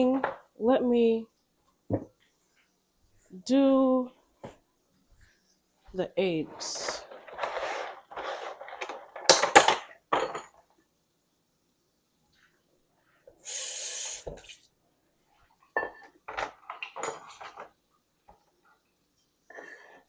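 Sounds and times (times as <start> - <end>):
dishes and utensils clattering: 6.8 - 10.6, 15.7 - 17.7.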